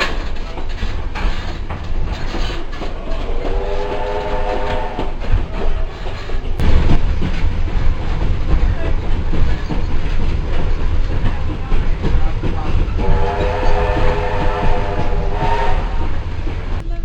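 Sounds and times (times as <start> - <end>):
wheels clacking over rail joints: 0.0 - 16.8
train carriage rumbling on track: 0.0 - 17.0
steam locomotive whistle: 3.0 - 5.2, 13.0 - 16.2.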